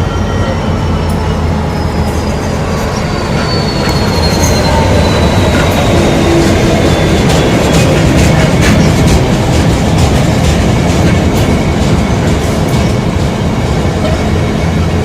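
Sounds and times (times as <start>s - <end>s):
high wheel squeal: 0.0s - 9.3s
freight train rumbling past: 0.0s - 15.0s
wheels clicking on rails: 2.0s - 15.0s.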